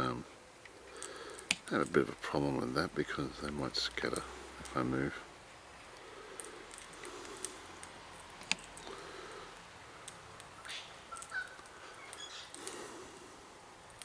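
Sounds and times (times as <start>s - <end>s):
faint bird chirps: 10.6s - 12.6s.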